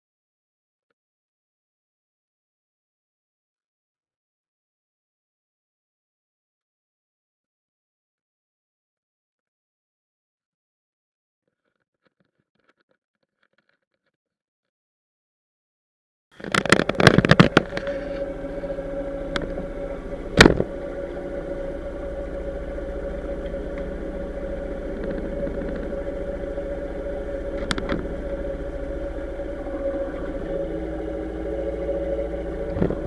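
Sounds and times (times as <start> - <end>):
engine humming: 16.4 - 33.0.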